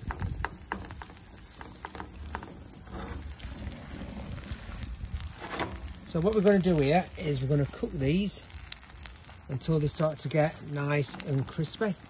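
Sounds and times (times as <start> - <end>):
soft taps pressing patties: 0.0 - 2.5
oil sizzling in a frying pan: 0.0 - 12.0.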